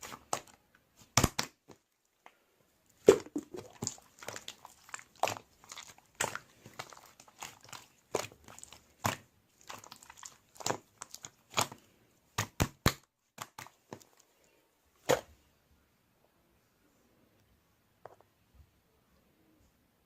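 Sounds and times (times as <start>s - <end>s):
slime squishing with sticky pops: 0.0s - 2.3s, 2.9s - 14.2s.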